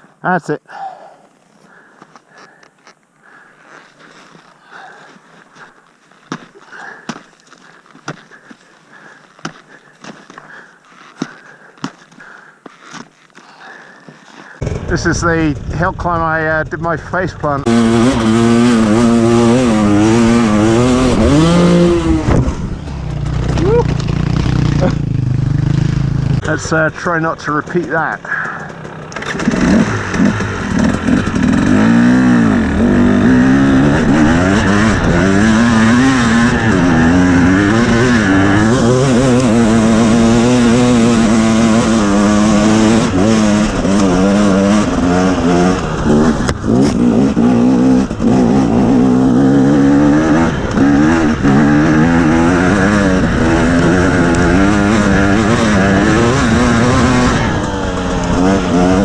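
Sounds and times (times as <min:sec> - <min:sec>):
two-stroke engine revving under load: 0:17.4 - 0:26.8, 0:27.4 - 0:59.0.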